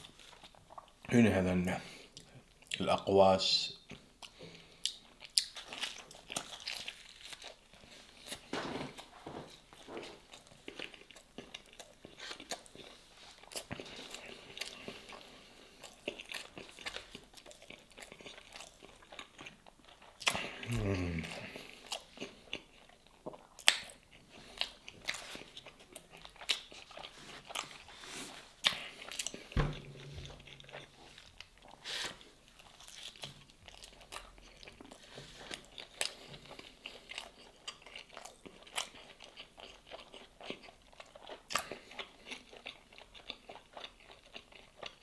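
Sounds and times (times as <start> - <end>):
chewing pastry: 0.0 - 1.2, 3.8 - 45.0
person humming: 20.4 - 21.6.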